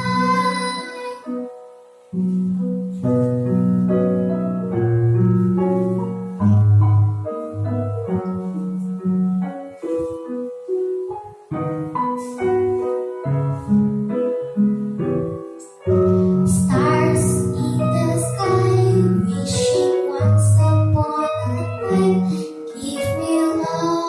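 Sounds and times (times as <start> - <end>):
girl singing: 0.0 - 1.6, 6.4 - 7.2, 15.6 - 24.0
piano melody: 0.0 - 24.0.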